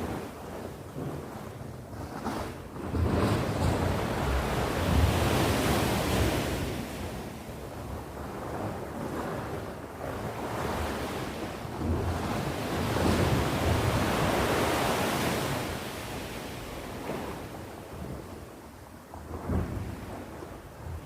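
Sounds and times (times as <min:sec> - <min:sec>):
sea waves breaking on shore: 0:00.0 - 0:21.0.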